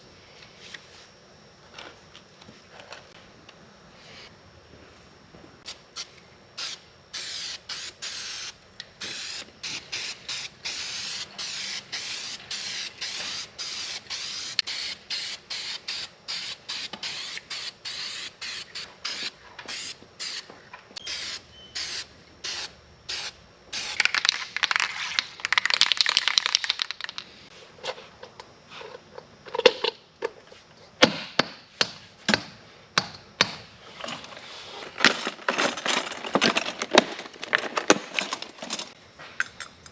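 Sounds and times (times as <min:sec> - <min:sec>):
paint spray gun hissing: 0:05.7 - 0:24.0.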